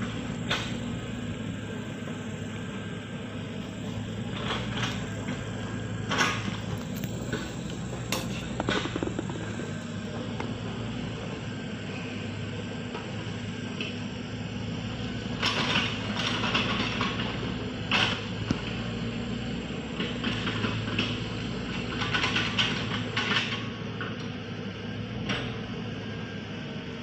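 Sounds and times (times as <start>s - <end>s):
heavy machine engine running: 0.0s - 27.0s.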